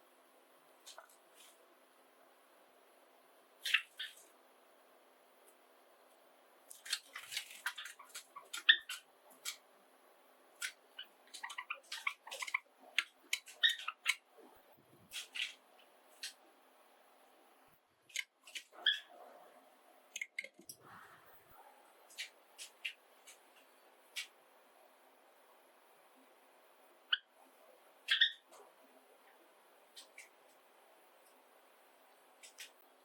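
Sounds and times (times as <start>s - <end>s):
sparrows chirping: 10.7s - 14.3s.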